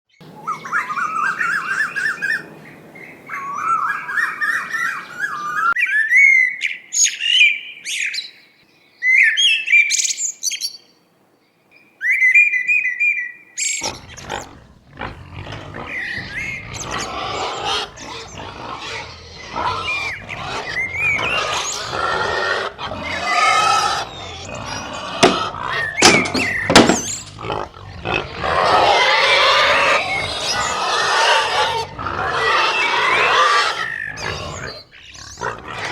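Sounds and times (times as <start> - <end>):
jumble of animal noises: 0.2 - 5.8, 13.6 - 35.9
birds chirping: 0.2 - 35.9.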